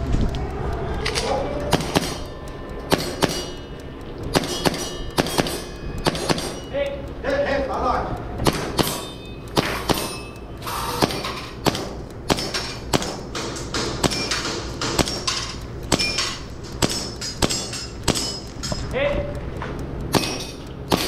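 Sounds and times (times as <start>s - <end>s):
airsoft pistol shots: 9.6s - 10.2s, 11.0s - 15.2s, 20.1s - 21.0s.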